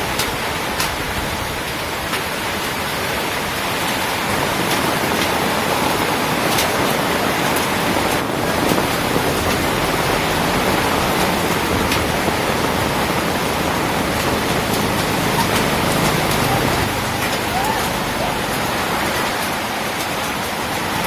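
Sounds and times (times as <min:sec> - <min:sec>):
heavy rain pouring: 0:00.0 - 0:21.0
raindrop ticks: 0:00.1 - 0:01.0, 0:02.0 - 0:02.4, 0:06.4 - 0:21.0.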